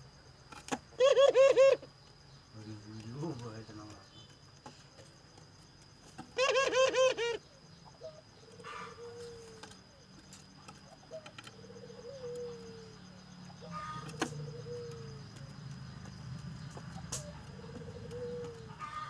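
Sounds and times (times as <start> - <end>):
dove cooing: 1.0 - 1.9, 6.3 - 15.6, 16.8 - 19.0.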